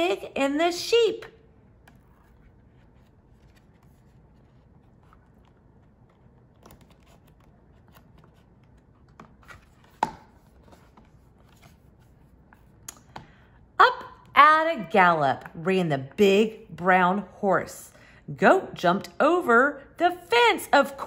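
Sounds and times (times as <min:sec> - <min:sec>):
paper rustling: 0:01.8 - 0:12.8.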